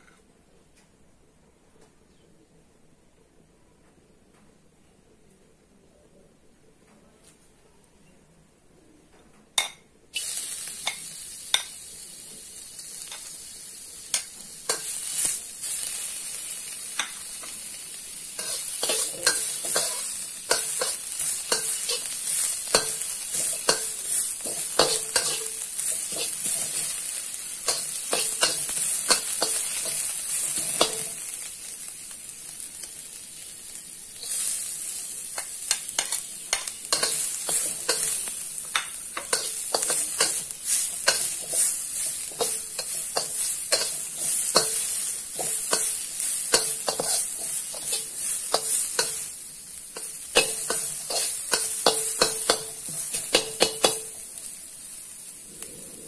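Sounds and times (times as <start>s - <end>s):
food sizzling in hot oil: 9.6s - 56.0s
metal spatula scraping wok: 14.6s - 31.4s, 34.2s - 49.4s, 50.0s - 54.2s.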